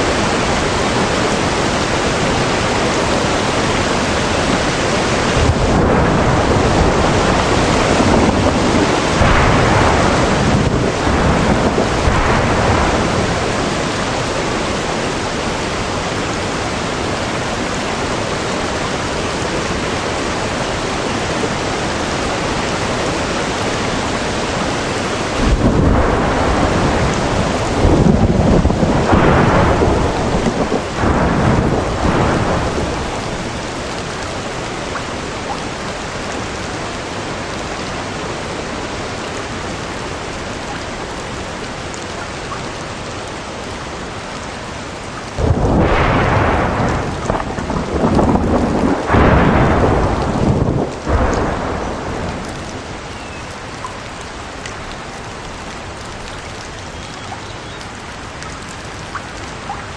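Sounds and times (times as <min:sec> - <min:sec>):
loud thunder clap: 0:00.0 - 0:33.7, 0:45.4 - 0:54.4
thunder rumbling: 0:00.0 - 0:33.7, 0:45.3 - 0:56.8
steady rain: 0:00.0 - 0:59.9.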